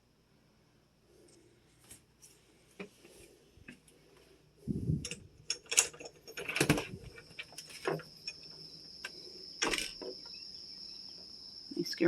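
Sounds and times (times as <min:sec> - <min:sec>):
crickets chirring: 0:04.5 - 0:12.0
handling knocks and rustles: 0:05.0 - 0:10.3.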